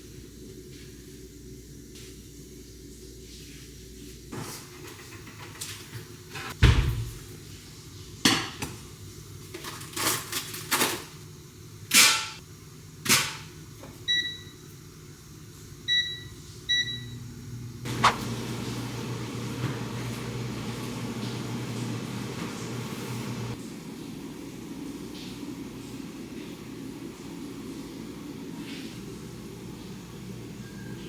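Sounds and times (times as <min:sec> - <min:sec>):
low machine hum: 0:14.1 - 0:31.0.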